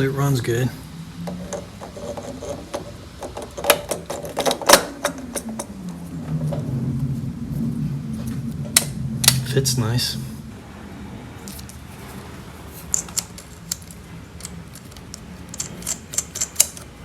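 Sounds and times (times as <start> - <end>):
steady low hum: 0.0 - 17.0
metal parts clicking and knocking: 1.3 - 5.7, 12.9 - 17.0.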